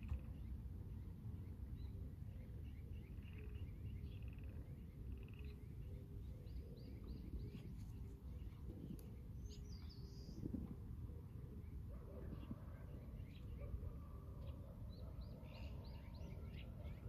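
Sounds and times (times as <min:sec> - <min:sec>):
small birds chirping: 0:00.0 - 0:10.6.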